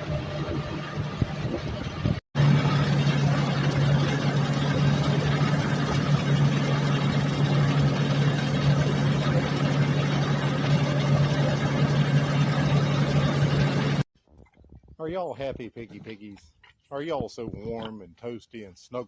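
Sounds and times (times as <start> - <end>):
motor droning: 0.0 - 14.1.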